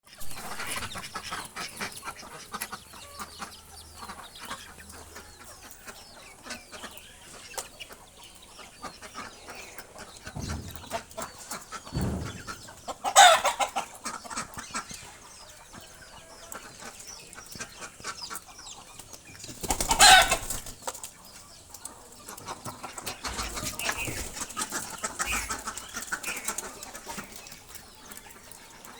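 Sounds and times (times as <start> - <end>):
birds clicking and calling: 0.1 - 28.9.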